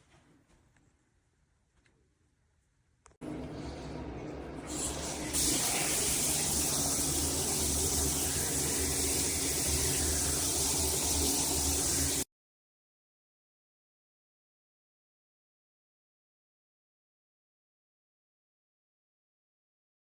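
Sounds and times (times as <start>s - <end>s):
shower head spraying water: 4.7s - 12.3s.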